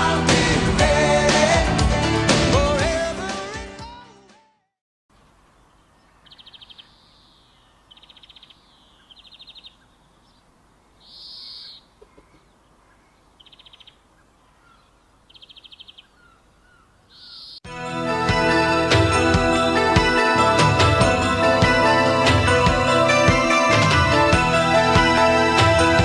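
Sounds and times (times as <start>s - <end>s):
small birds trilling: 5.4s - 17.6s
smooth bird call: 5.6s - 17.6s.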